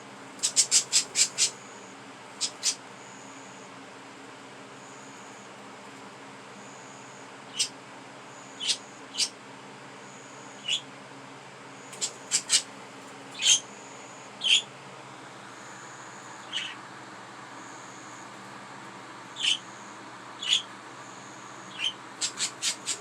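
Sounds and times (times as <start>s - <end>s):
steady low hum: 0.0s - 23.0s
budgerigars chirping: 0.4s - 1.6s, 2.4s - 2.8s, 7.5s - 7.7s, 8.6s - 9.4s, 10.6s - 10.8s, 12.0s - 12.7s, 13.4s - 13.6s, 14.4s - 14.7s, 16.4s - 16.8s, 19.4s - 19.7s, 20.4s - 20.7s, 21.6s - 23.0s.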